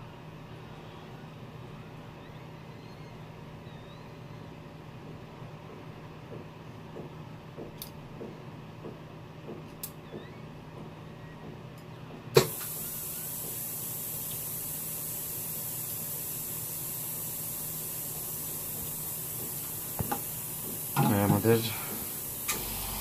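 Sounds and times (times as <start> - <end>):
hot air gun hissing: 12.4 - 23.0.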